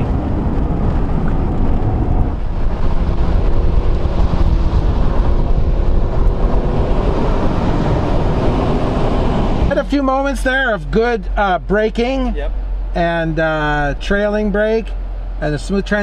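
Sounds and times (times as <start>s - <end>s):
tyre and wind noise in car cabin: 0.0s - 10.1s
car engine accelerating: 0.0s - 11.4s.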